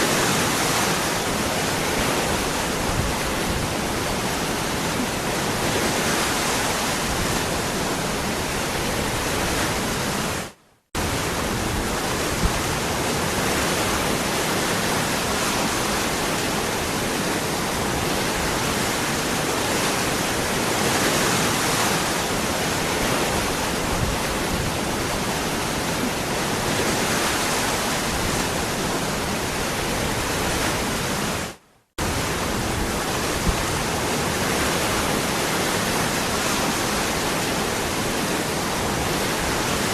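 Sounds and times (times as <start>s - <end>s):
waterfall rushing: 11.0s - 39.9s.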